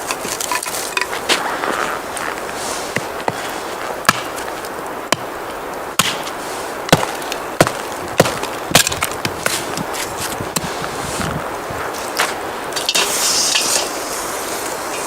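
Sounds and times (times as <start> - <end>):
steady hiss: 0.0 - 15.0
wood chopping knocks: 4.1 - 4.5, 6.9 - 9.6.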